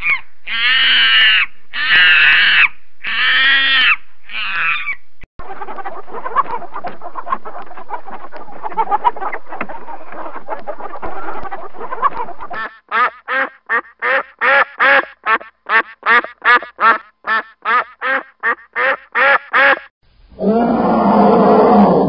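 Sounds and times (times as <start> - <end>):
hens clucking: 5.4 - 19.8
duck quacking: 5.4 - 19.9
bear roaring: 20.4 - 22.0.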